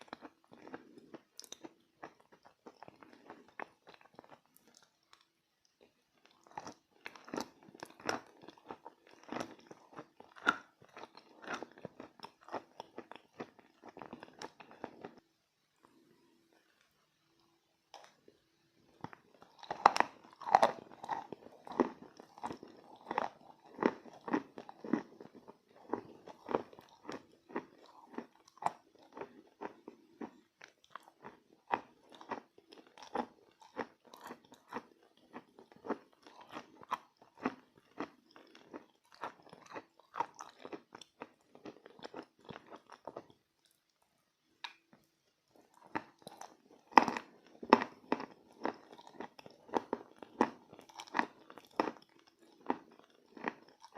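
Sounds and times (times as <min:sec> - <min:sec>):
crunchy chalk biting and chewing: 0:06.3 - 0:15.2, 0:19.0 - 0:43.3, 0:45.6 - 0:53.9.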